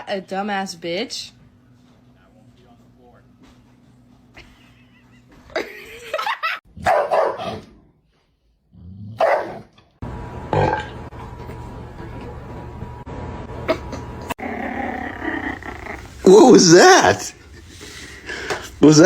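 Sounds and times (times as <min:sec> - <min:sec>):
steady background hum: 0:00.0 - 0:07.3, 0:10.0 - 0:19.0
dog barking: 0:06.8 - 0:07.7, 0:09.2 - 0:09.7.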